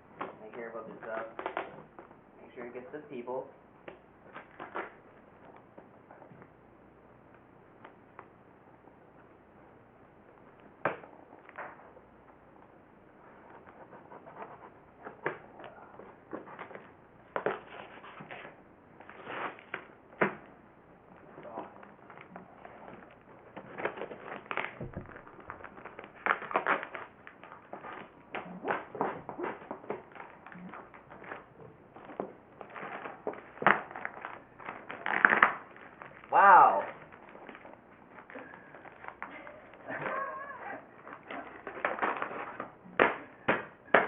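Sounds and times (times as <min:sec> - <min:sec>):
cardboard rustling: 0:13.2 - 0:19.9, 0:21.2 - 0:42.8
cardboard tearing: 0:21.6 - 0:39.2.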